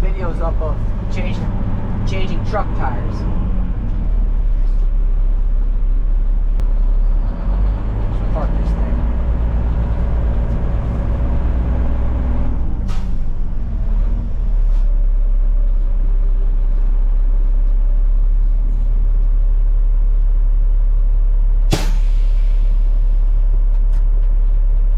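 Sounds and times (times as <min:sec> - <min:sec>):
diesel truck engine running: 0:00.0 - 0:24.9
air brake blast: 0:12.9 - 0:13.3, 0:21.7 - 0:23.1.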